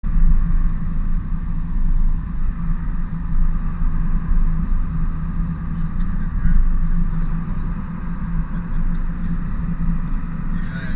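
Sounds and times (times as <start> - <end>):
truck engine and road rumble: 0.0 - 10.9.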